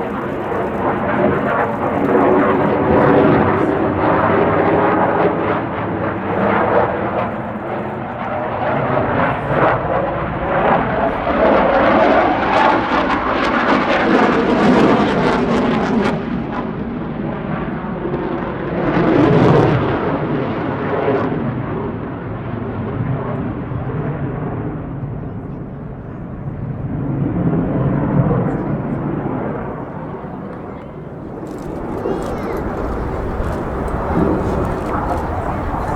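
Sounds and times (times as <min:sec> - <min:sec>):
fighter jet roaring: 0:00.0 - 0:14.6, 0:26.8 - 0:35.9.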